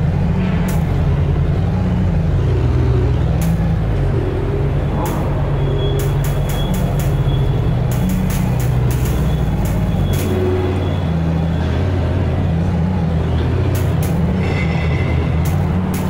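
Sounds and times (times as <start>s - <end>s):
heavy vehicle rumble: 0.0s - 16.0s
sharp clicks: 3.3s - 3.8s, 4.9s - 11.1s, 13.7s - 14.4s, 15.4s - 16.0s
high squeal: 4.2s - 12.0s, 13.7s - 16.0s.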